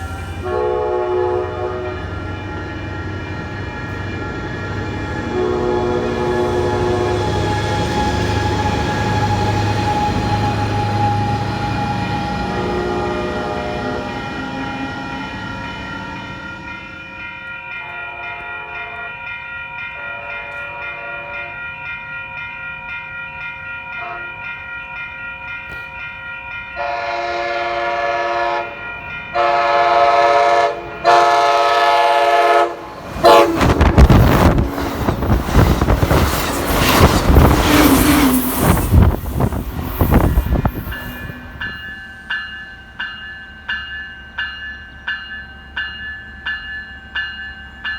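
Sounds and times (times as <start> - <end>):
train horn blasts: 0.0 - 19.3, 20.0 - 21.6, 24.0 - 24.4, 26.8 - 35.3, 37.6 - 41.8
train passing with rumble: 0.0 - 47.9
grade crossing bells ringing: 1.2 - 47.9
train wheel clatter: 33.2 - 41.8.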